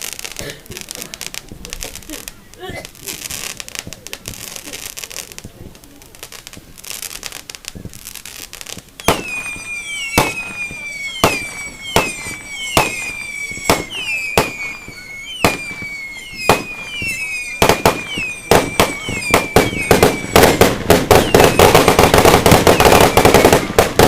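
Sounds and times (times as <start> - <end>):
fireworks crackling: 0.0 - 24.0
fireworks sharp bangs: 0.0 - 24.0
high falling whistle: 9.0 - 23.6.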